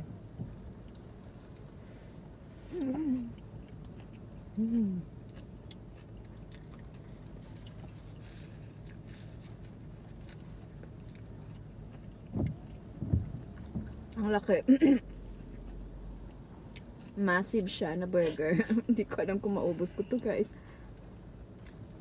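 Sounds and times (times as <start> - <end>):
car interior hum: 0.0 - 22.0
person humming mm: 2.7 - 3.4, 4.6 - 5.1
chewing food: 3.2 - 14.2, 20.9 - 22.0.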